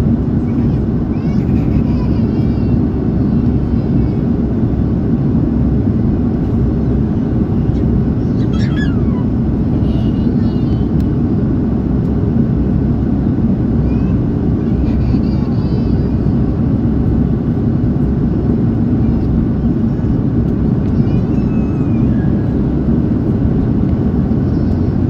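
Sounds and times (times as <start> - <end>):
aircraft cabin engine rumble: 0.0 - 25.0.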